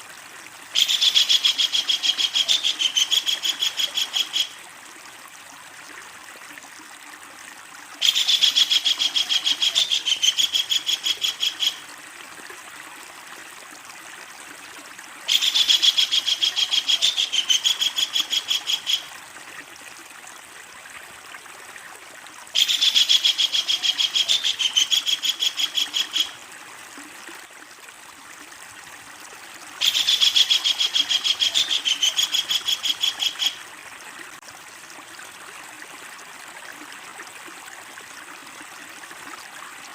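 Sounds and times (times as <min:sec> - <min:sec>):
kingfisher rattling call: 0:00.8 - 0:04.6, 0:08.0 - 0:11.8, 0:15.3 - 0:19.1, 0:22.6 - 0:26.4, 0:29.8 - 0:33.6.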